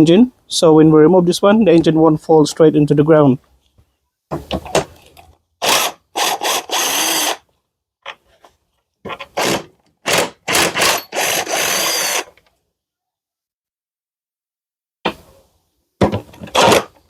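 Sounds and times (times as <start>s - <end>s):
power drill short bursts: 5.6s - 7.4s, 9.4s - 12.4s.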